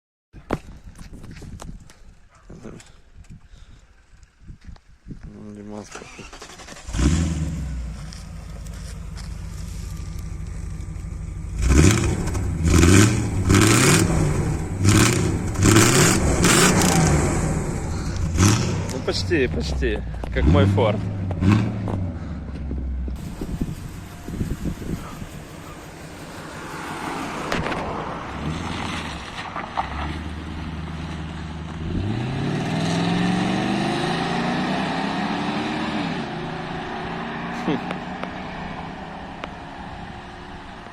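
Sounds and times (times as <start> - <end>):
engine revving in throttle blips: 6.2 - 40.9
car engine idling: 6.4 - 31.8.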